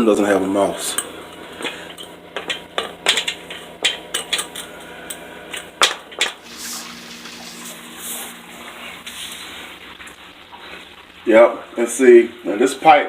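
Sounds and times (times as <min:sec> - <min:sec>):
low hum: 0:00.7 - 0:12.8
metallic clanks at sump pump: 0:00.9 - 0:06.4
rushing water: 0:06.2 - 0:12.9.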